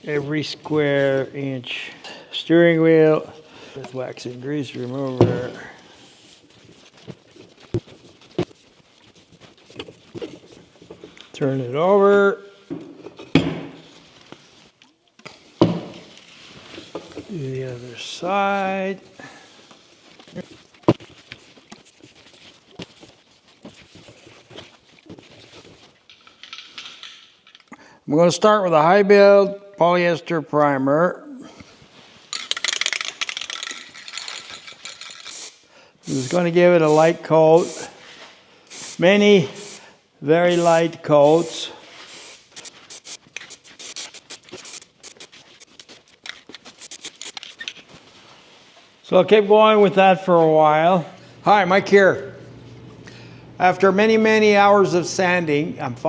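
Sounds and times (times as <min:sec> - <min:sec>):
spray gun hissing bursts: 0:35.3 - 0:38.0, 0:38.7 - 0:45.7, 0:46.8 - 0:47.6
rag wiping steering wheel: 0:36.1 - 0:47.6.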